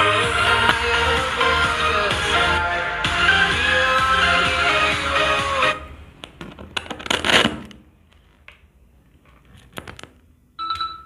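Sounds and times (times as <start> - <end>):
pop music from speaker: 0.0 - 5.9.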